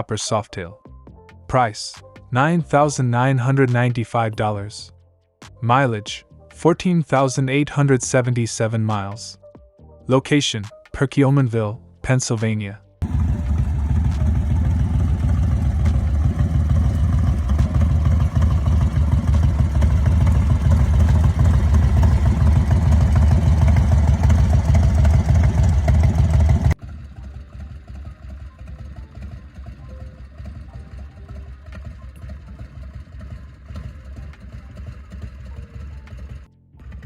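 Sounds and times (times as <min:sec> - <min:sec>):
motorcycle engine rumbling: 0:13.0 - 0:37.0.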